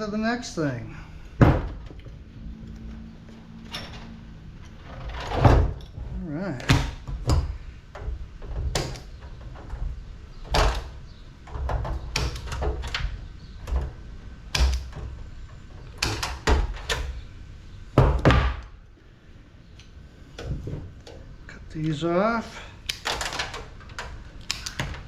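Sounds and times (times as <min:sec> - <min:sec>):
low handling rumble: 0:00.0 - 0:11.5.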